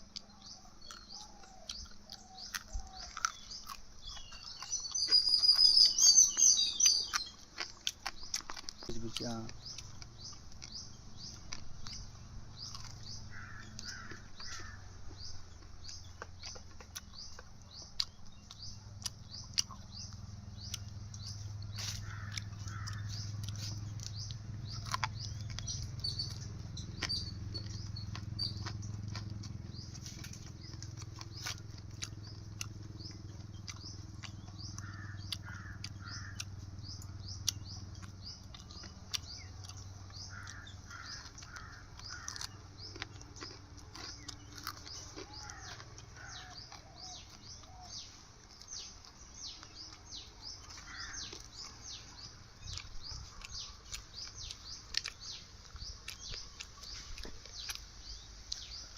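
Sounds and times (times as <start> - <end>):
lower bird calls: 0.0 - 58.9
small birds chirping: 0.0 - 58.9.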